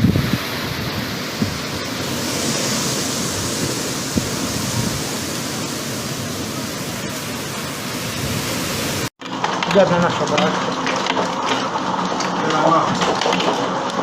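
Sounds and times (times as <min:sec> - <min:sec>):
hail and rain pelting down: 0:00.2 - 0:14.0
hailstones knocking: 0:08.0 - 0:14.0.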